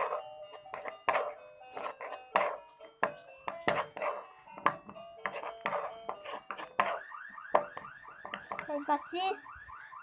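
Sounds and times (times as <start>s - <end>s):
stirrer knocking on container: 6.5s - 8.7s.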